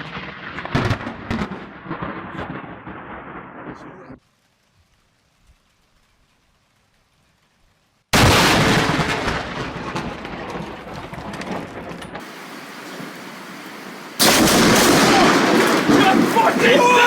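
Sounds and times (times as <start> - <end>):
thunder crack and rumble: 0.0 - 4.2, 8.2 - 13.2, 14.2 - 17.0.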